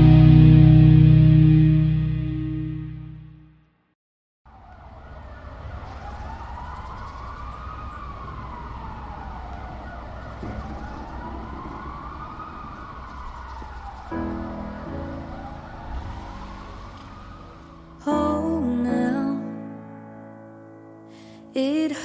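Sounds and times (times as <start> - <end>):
emergency siren wailing: 4.5 - 19.5.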